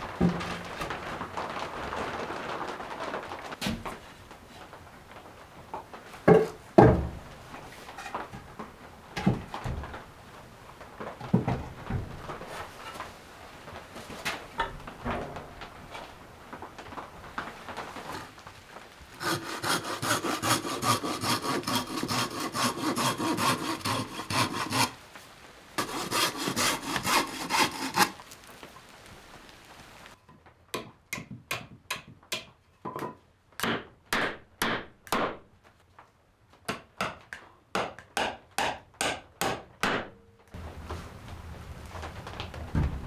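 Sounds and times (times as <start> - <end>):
hand saw cutting wood: 19.1 - 28.6.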